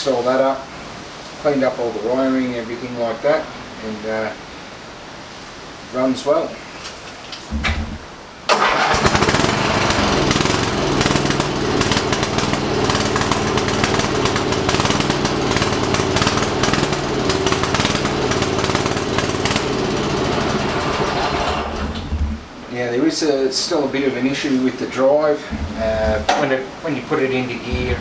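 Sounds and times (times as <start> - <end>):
lawnmower engine running: 7.5 - 22.6, 25.5 - 26.4, 27.6 - 28.0.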